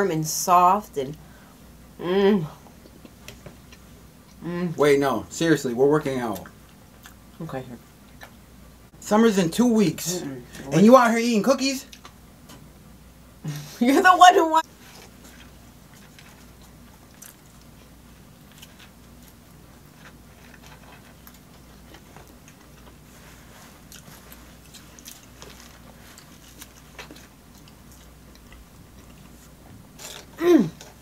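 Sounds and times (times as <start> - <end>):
low steady hum: 0.0 - 31.0
person chewing food: 6.3 - 7.3, 14.8 - 31.0.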